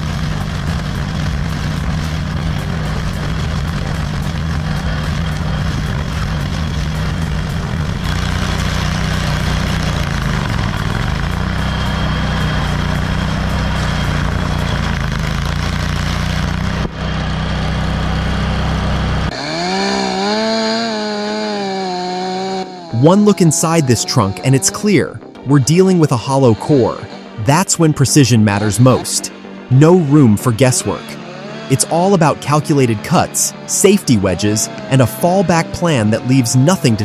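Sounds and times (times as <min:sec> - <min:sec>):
chainsaw cutting through timber: 0:00.0 - 0:27.8, 0:28.5 - 0:37.0.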